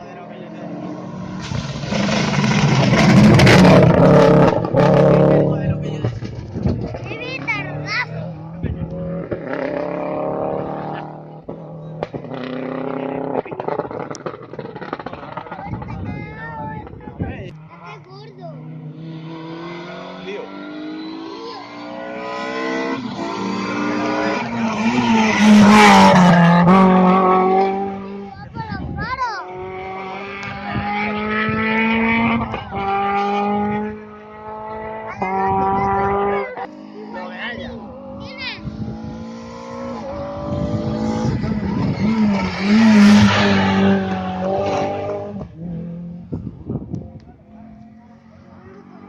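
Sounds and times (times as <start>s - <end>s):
rally car engine accelerating: 0.0s - 28.4s, 29.5s - 49.0s
tyre noise: 37.4s - 49.0s.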